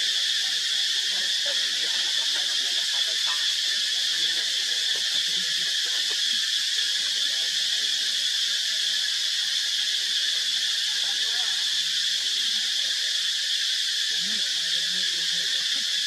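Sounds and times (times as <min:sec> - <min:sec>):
insect chorus drone: 0:00.0 - 0:16.0.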